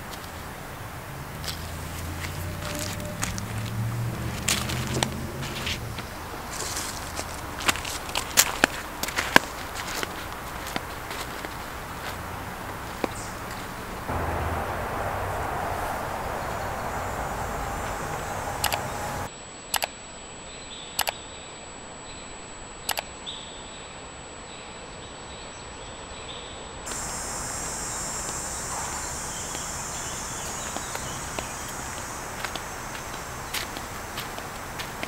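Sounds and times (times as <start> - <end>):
woodland ambience: 0.0 - 19.9, 20.5 - 35.0
footsteps on dirt path: 1.4 - 18.5, 30.3 - 35.0.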